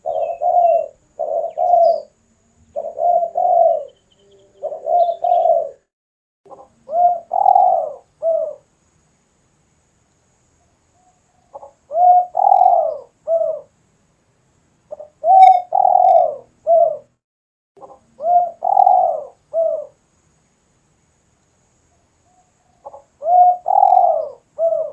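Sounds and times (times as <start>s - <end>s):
dove cooing: 0.0s - 5.9s, 6.5s - 8.6s, 11.5s - 13.7s, 14.9s - 17.1s, 17.8s - 20.0s, 22.8s - 24.9s.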